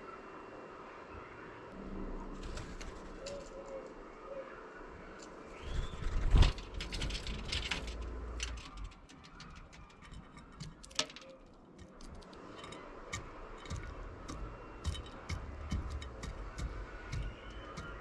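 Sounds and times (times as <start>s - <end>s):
beak taps and clicks: 8.8s - 18.0s.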